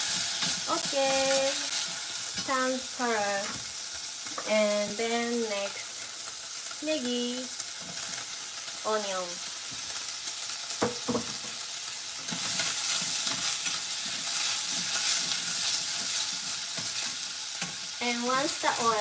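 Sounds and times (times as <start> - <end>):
meat sizzling in oil: 0.0 - 19.0
chopsticks scraping a pan: 12.2 - 19.0.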